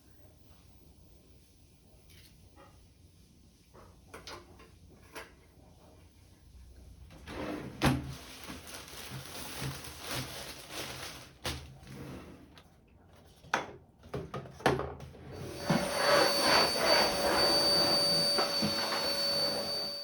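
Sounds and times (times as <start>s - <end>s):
soft rustling: 8.1s - 11.4s.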